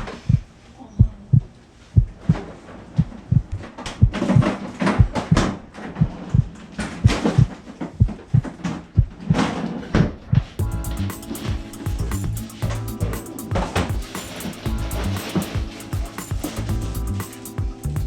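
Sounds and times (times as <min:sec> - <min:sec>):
heartbeat-like bass beat music: 0:10.6 - 0:18.0.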